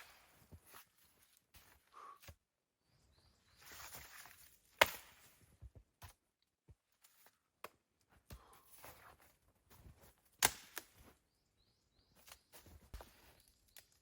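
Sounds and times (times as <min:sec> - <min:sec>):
sharp crack: 0:10.4 - 0:10.9.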